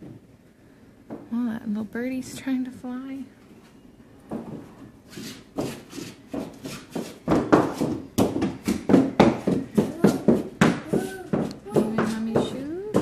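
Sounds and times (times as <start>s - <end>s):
sharp knocks: 6.4s - 13.0s.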